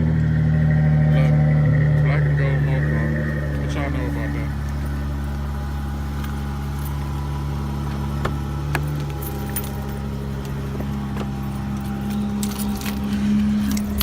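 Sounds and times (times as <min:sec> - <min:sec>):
car engine idling: 0:00.0 - 0:14.0
light clicks and jingles: 0:04.0 - 0:14.0.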